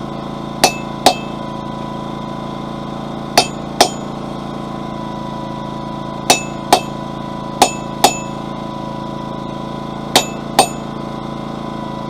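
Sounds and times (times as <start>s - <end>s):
generator engine drone: 0.0s - 12.0s
hammer striking metal chisel: 0.6s - 1.4s, 3.4s - 4.2s, 6.3s - 7.0s, 7.6s - 8.4s, 10.1s - 10.9s.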